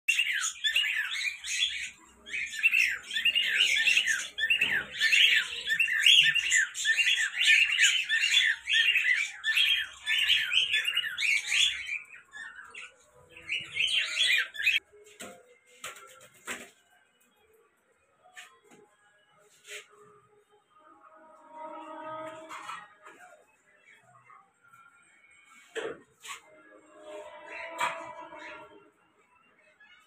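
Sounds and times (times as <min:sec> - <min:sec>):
cage birds chirping and squawking: 0:00.1 - 0:14.8, 0:21.1 - 0:30.0.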